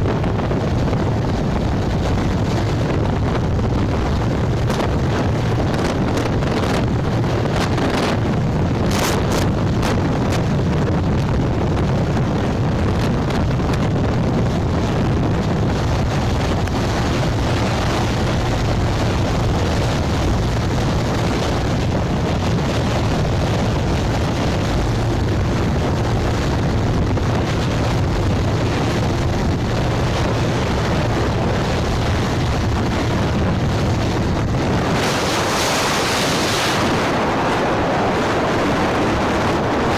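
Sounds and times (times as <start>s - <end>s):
road noise: 0.0s - 37.2s
wind rushing over microphone: 0.0s - 39.9s.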